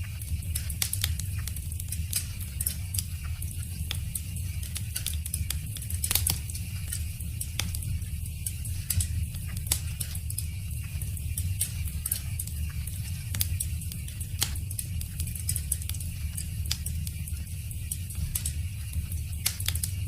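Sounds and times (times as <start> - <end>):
low rumble of flames: 0.0 - 20.0
burning wood popping and snapping: 0.5 - 2.8, 3.8 - 7.9, 13.2 - 17.1, 19.3 - 20.0.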